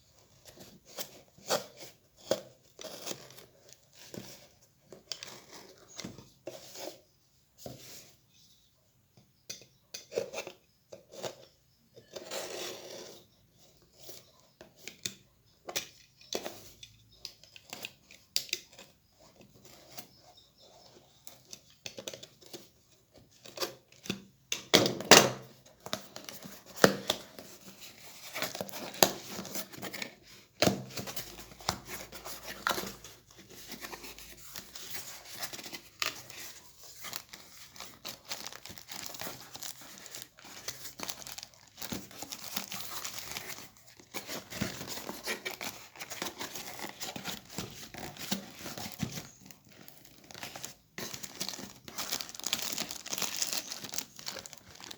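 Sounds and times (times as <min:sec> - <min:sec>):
packaging tearing and crinkling: 0:33.9 - 0:54.9.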